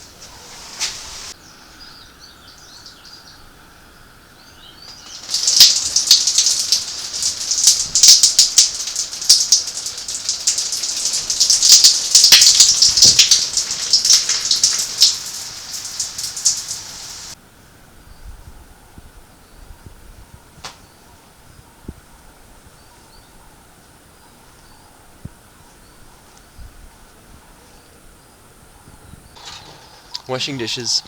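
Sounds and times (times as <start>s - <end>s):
outdoor shower water spraying: 0.0s - 1.4s, 4.9s - 17.4s.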